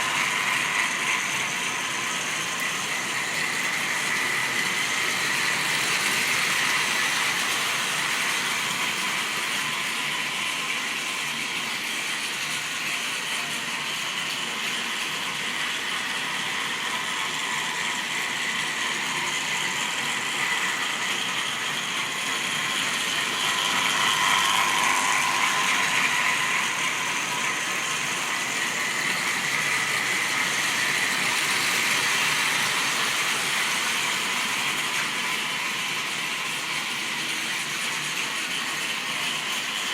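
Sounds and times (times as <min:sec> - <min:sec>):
model train motor whirring: 0:00.0 - 0:39.9.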